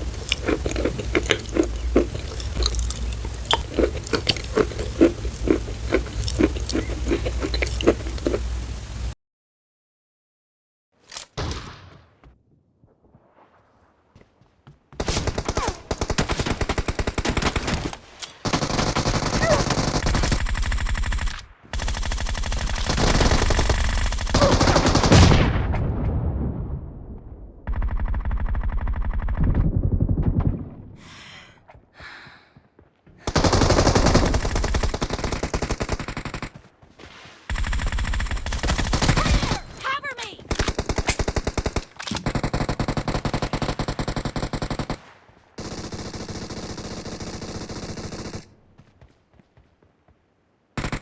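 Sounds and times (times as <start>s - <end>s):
rapid automatic gunfire: 15.0s - 25.4s, 27.7s - 30.2s, 33.3s - 36.6s, 37.5s - 39.4s, 40.6s - 45.0s, 45.6s - 48.5s, 50.8s - 51.0s.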